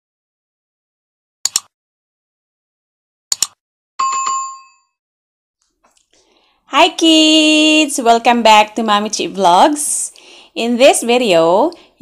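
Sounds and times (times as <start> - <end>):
bell ding: 4.0 - 5.0.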